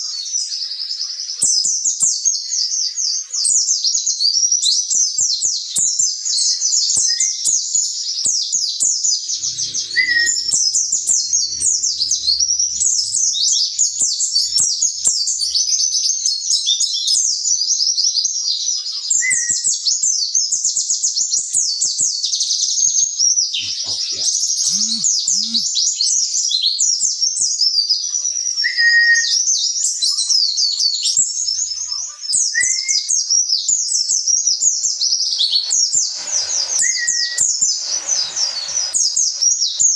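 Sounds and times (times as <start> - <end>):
bird twittering song: 9.2 - 16.8, 30.9 - 39.9
short low whistled notes: 9.3 - 15.9, 34.7 - 39.9.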